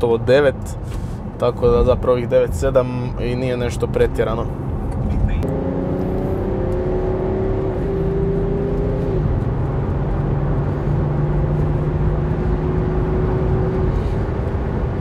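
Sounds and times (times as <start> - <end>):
road and tyre noise: 0.0 - 15.0.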